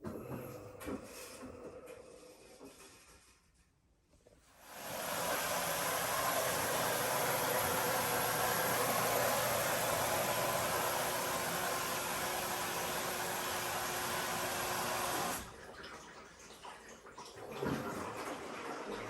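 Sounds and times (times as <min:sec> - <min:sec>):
water rushing into washer: 0:04.6 - 0:19.0.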